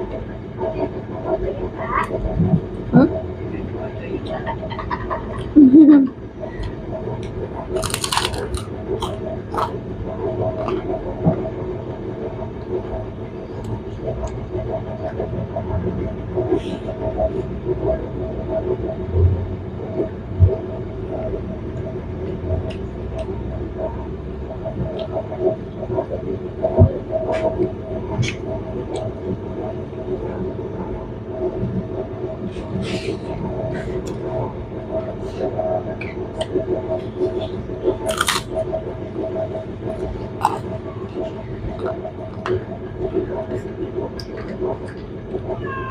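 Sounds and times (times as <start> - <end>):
mechanical hum with fluttering pulse: 0.0 - 45.9
person chewing food: 6.6 - 9.8, 37.3 - 38.7, 39.8 - 42.5.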